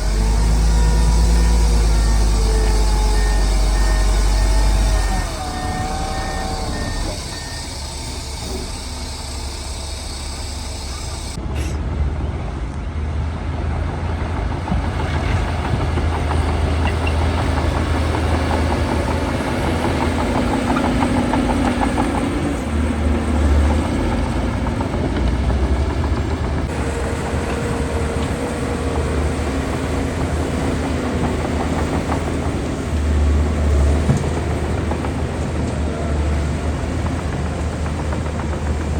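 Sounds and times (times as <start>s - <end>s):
diesel machinery engines rumbling: 0.0s - 38.9s.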